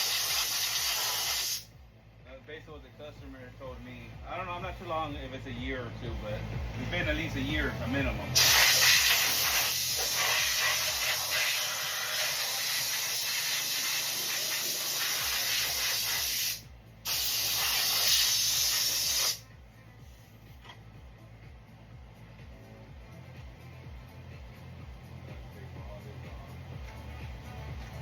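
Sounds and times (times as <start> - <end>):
pressurized spray hissing: 0.0 - 1.7, 8.4 - 19.4.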